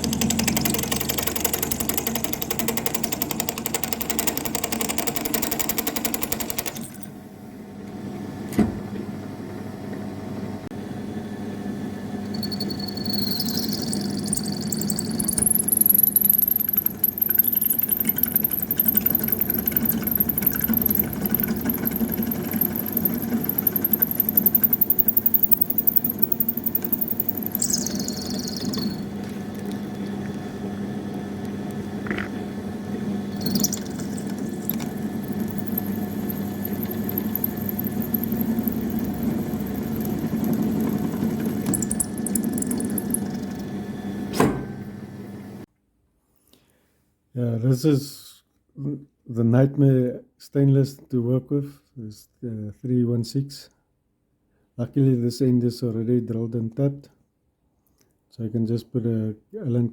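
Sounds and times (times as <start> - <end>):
machine tool motor hum: 0.0 - 7.2, 12.2 - 45.6
high-pitched cutting tool squeal: 12.4 - 29.1, 33.4 - 43.7.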